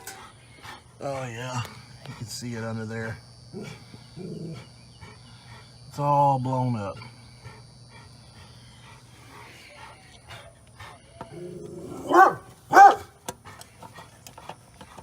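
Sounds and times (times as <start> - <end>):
dog barking: 11.9 - 13.2.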